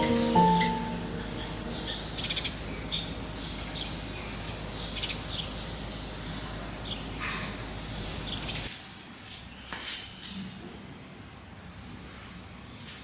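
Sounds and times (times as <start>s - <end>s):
low background rumble: 0.0s - 8.7s
small birds chirping: 0.0s - 8.7s.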